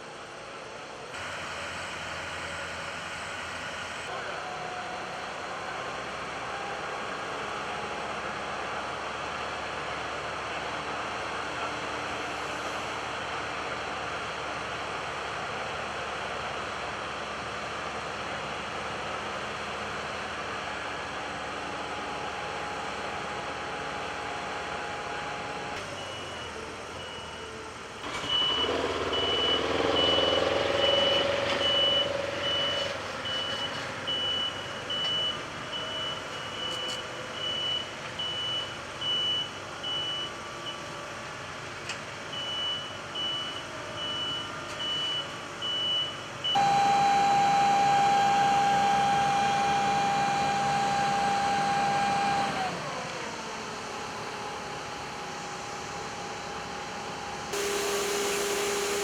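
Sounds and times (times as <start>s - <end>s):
reversing beeper: 25.9s - 40.3s, 42.4s - 52.6s, 57.6s - 59.0s
vehicle engine running: 27.5s - 34.1s, 46.6s - 59.0s
motor whine winding down: 28.0s - 33.0s, 46.6s - 54.4s, 56.9s - 59.0s.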